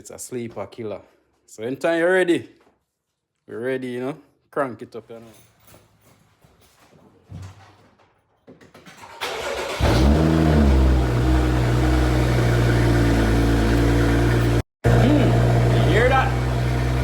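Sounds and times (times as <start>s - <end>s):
car engine starting and idling: 9.0s - 17.0s.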